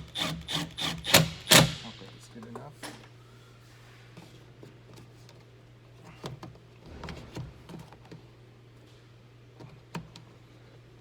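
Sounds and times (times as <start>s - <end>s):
steady low hum: 6.8s - 9.7s.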